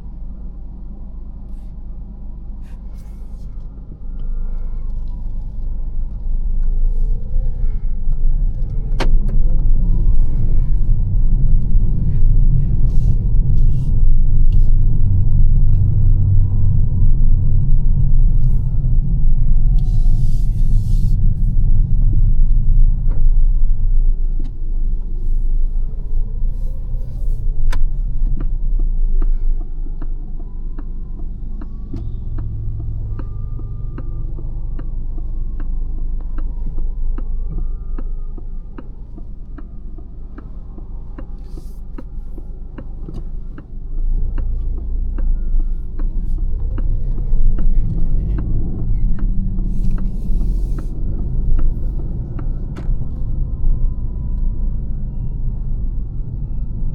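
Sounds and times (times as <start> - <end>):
road and tyre rumble: 0.0 - 56.9.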